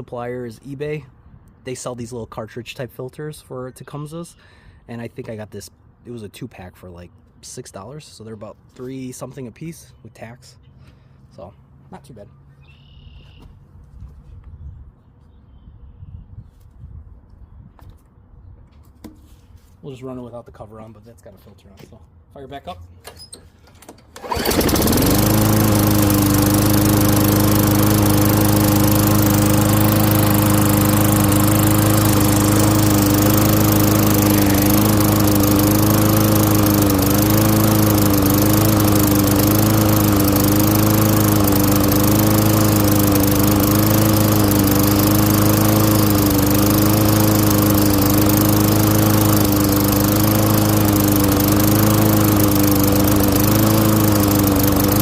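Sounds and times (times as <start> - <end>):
lawn mower engine starting: 23.2 - 55.0.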